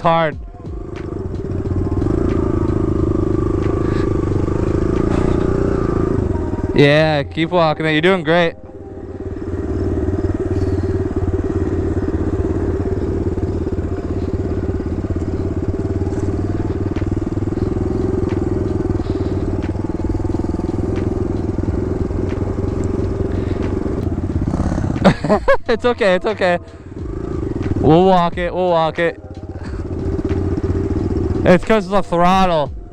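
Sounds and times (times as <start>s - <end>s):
dirt bike engine running: 0.0s - 32.9s.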